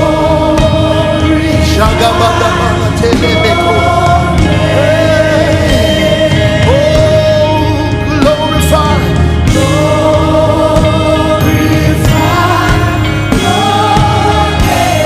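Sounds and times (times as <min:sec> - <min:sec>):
band playing chords: 0:00.0 - 0:15.0.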